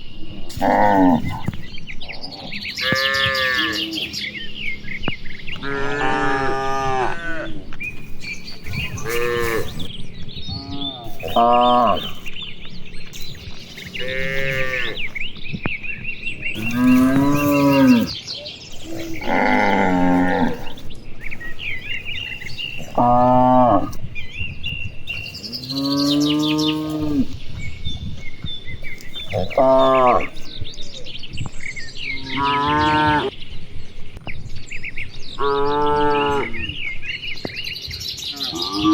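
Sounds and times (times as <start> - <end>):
cattle mooing: 0.5 - 4.4, 5.6 - 15.4, 16.4 - 24.3, 25.1 - 27.4, 28.9 - 30.6, 32.0 - 33.3, 35.3 - 36.8, 38.3 - 38.9.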